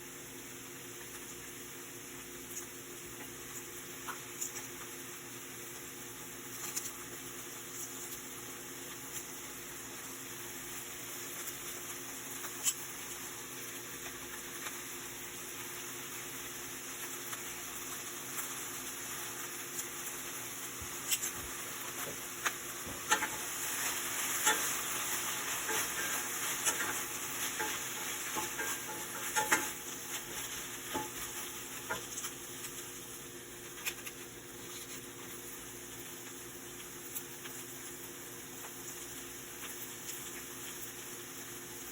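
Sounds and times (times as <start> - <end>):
food sizzling in a frying pan: 0.0 - 41.9
utensil scraping a pan: 23.0 - 32.1.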